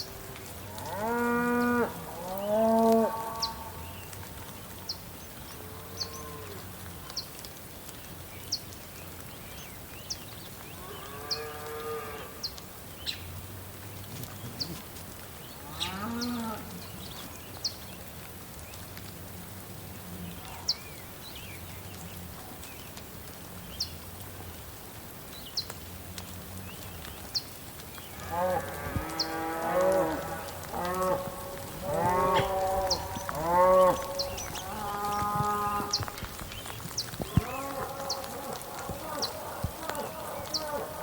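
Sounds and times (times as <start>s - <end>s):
cattle mooing: 28.2s - 36.1s, 37.3s - 41.0s.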